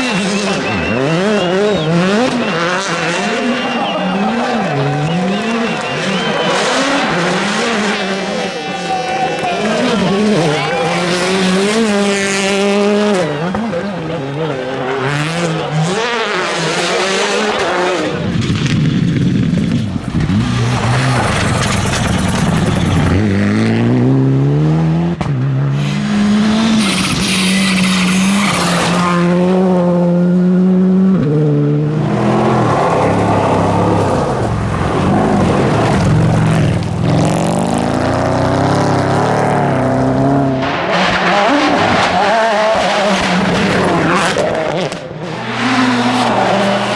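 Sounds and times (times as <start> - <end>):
rally car engines revving: 0.0 - 46.9
tyres on gravel: 19.5 - 23.6.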